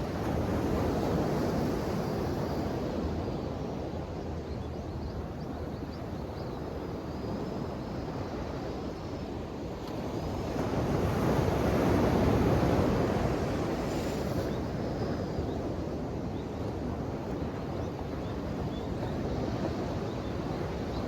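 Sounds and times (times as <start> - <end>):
ocean waves washing ashore: 0.0 - 4.6, 6.7 - 21.0.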